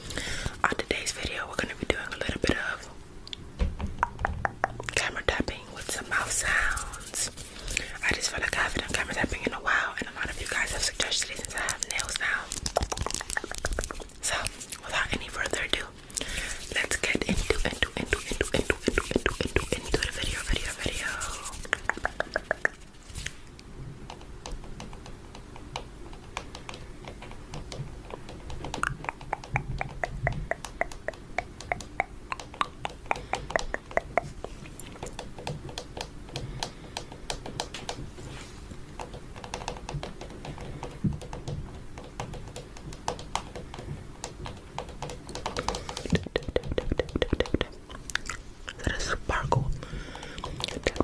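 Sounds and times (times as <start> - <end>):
fingernails tapping on camera: 3.6 - 5.5, 10.1 - 15.6, 16.2 - 23.3, 24.1 - 38.0, 39.0 - 47.8.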